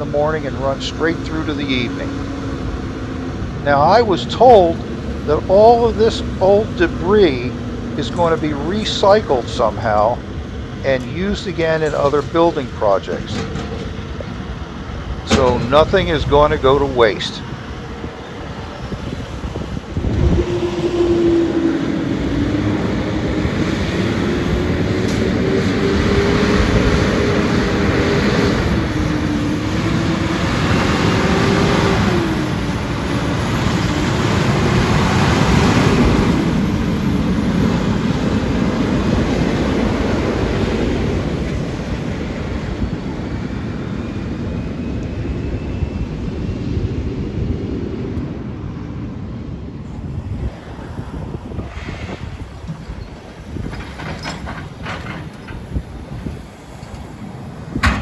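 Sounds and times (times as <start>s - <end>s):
heavy vehicle engine revving: 0.0s - 44.3s.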